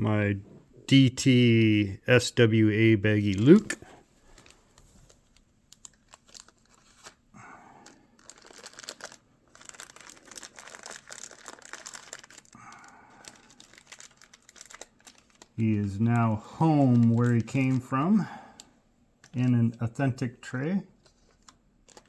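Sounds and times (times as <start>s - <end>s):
plastic bag crinkling: 3.2s - 19.6s, 21.0s - 22.0s.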